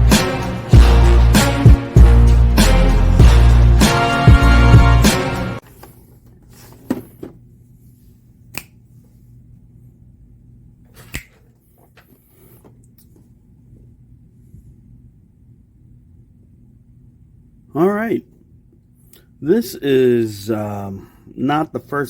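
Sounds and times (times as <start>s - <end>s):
intro music: 0.0s - 5.6s.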